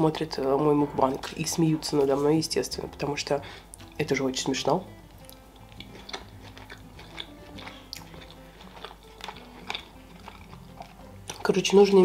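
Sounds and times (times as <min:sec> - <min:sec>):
person chewing food: 0:05.0 - 0:12.0
wet mouth clicks: 0:05.1 - 0:11.4.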